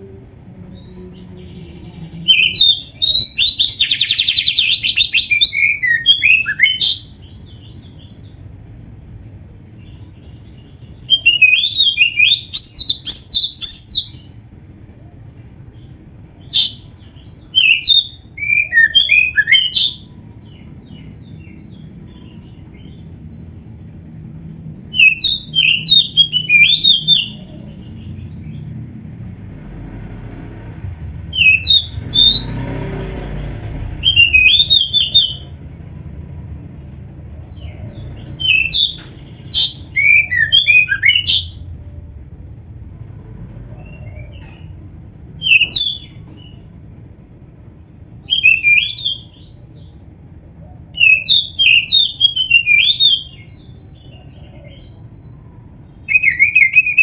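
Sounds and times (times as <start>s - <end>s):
bird singing whistled phrases: 2.3s - 7.1s, 16.5s - 20.1s, 24.9s - 27.7s, 31.3s - 32.6s, 34.0s - 35.5s, 38.3s - 41.6s, 45.4s - 46.6s, 48.2s - 49.9s, 50.9s - 55.4s, 56.0s - 57.0s.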